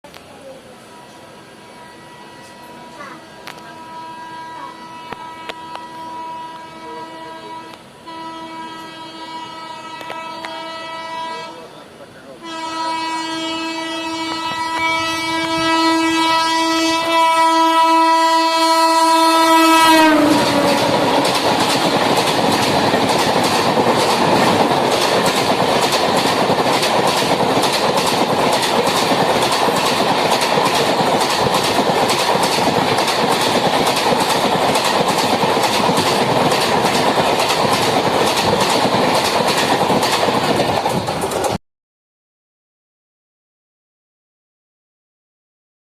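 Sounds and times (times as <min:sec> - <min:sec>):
train horn blast: 0:00.8 - 0:11.8, 0:12.4 - 0:25.0
train wheels clacking over rail joints: 0:19.2 - 0:41.6.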